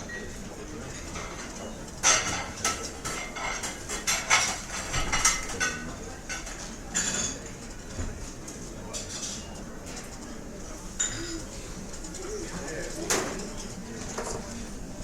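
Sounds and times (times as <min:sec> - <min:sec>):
dishes and cutlery clinking: 0:00.9 - 0:07.7, 0:08.9 - 0:10.2, 0:11.0 - 0:14.6.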